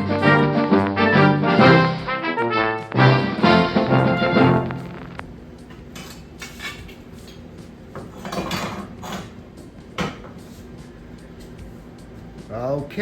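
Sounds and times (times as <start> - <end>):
brass music intro: 0.0 - 5.4.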